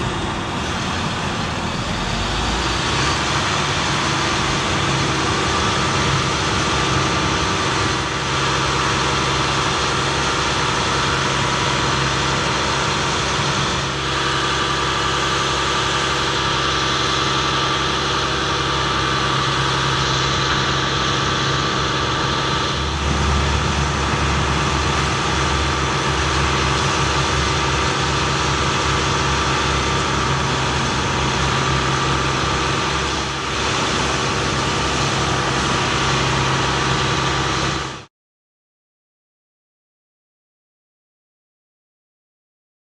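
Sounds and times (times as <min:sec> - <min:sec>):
truck engine idling: 0:00.0 - 0:38.1
deep low hum: 0:19.3 - 0:37.8.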